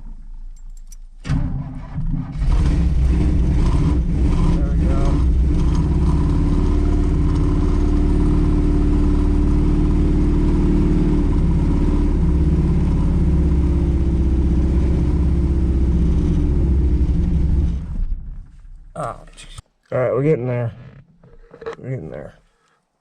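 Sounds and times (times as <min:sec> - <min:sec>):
car engine running: 0:01.9 - 0:19.5.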